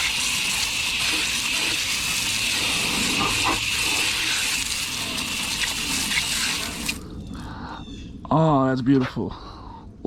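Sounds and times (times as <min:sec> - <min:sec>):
water spraying from hose nozzle: 0:00.0 - 0:07.0.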